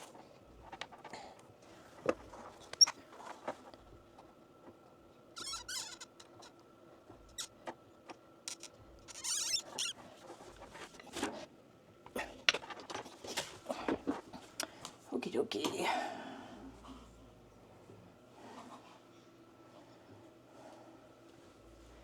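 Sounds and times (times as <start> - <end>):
squeaky rubbing of plastic parts: 5.3 - 7.8, 8.5 - 11.2.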